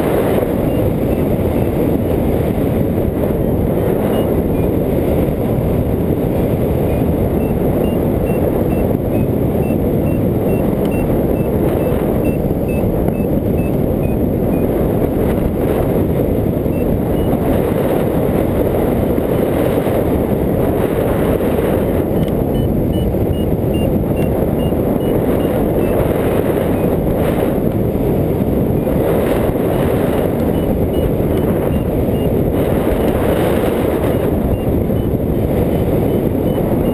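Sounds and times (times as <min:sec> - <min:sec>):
airflow rushing over microphone: 0:00.0 - 0:36.9
variometer short beeps: 0:00.4 - 0:01.8, 0:04.0 - 0:04.8, 0:06.8 - 0:14.7, 0:16.6 - 0:17.4, 0:22.1 - 0:27.0, 0:30.2 - 0:36.9.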